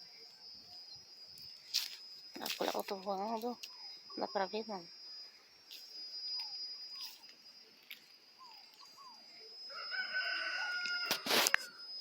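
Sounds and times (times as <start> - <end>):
faint bird chirps: 8.3 - 10.8
rooster crowing: 9.7 - 11.8.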